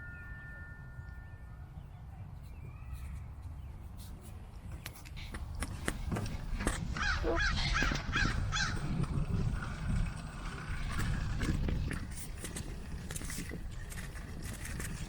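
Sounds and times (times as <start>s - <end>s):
bird harsh calls: 7.0s - 8.9s.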